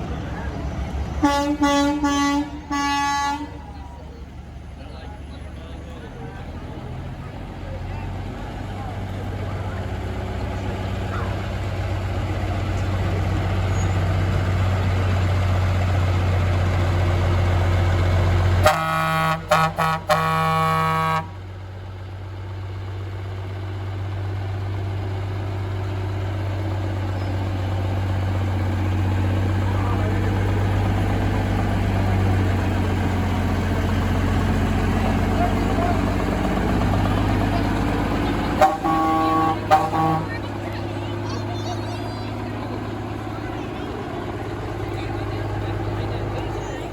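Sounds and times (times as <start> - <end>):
truck engines rumbling: 0.0 - 46.9
truck air horn blasts: 1.2 - 3.7, 18.6 - 21.4, 37.4 - 41.2.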